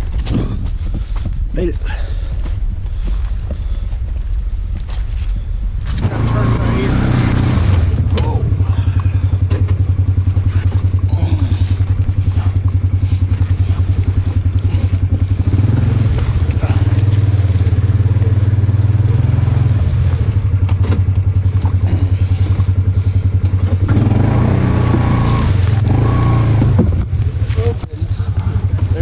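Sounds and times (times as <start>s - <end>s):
off-road vehicle engine running: 0.0s - 29.0s
short knocks from the ride: 9.4s - 10.9s.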